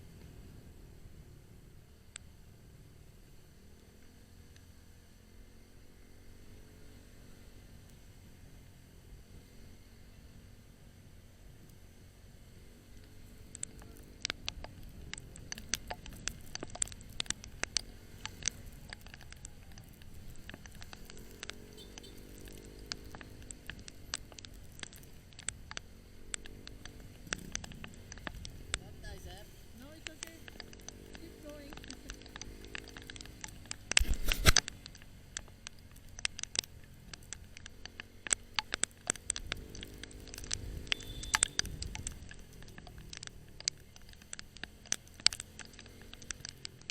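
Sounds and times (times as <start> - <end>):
motorcycle rumble: 0.0 - 46.9
sharp ticks and taps: 13.0 - 46.9.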